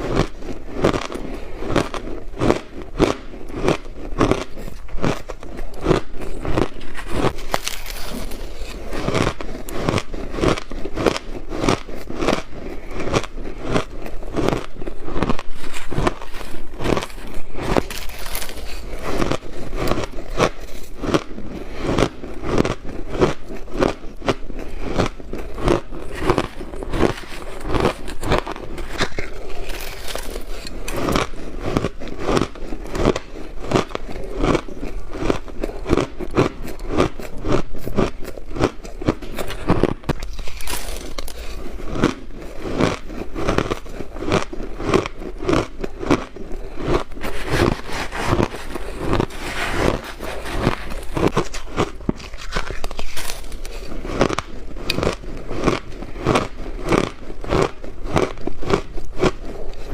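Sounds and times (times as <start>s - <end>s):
chewing crunchy ice: 0.0s - 59.9s.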